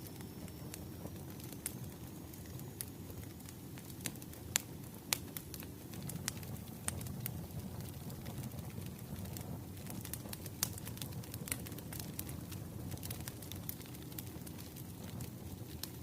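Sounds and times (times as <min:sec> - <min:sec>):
burning logs crackling and popping: 0:00.0 - 0:16.0
wood fire rumbling: 0:00.0 - 0:16.0.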